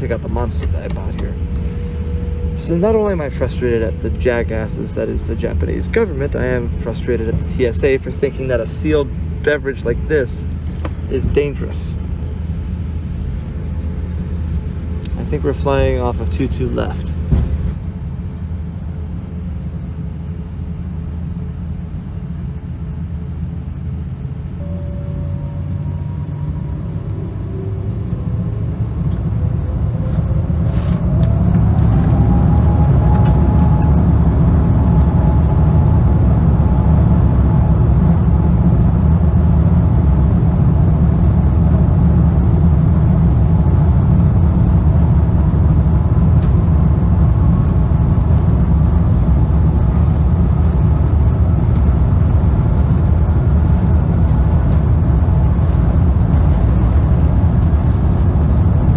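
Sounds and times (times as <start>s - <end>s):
jet engine whine rising: 0.0s - 58.9s
takeoff roll rumble: 0.0s - 58.9s.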